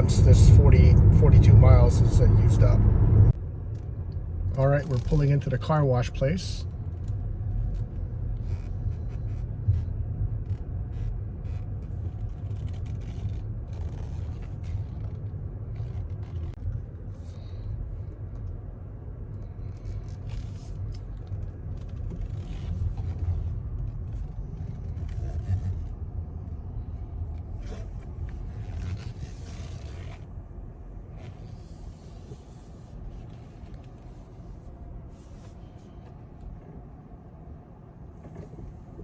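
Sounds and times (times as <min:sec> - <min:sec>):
car tyre and road noise: 0:00.0 - 0:39.0.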